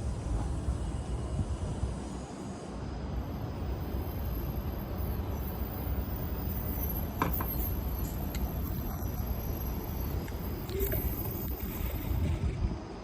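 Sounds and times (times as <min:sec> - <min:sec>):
wind buffeting microphone: 0:10.2 - 0:13.0.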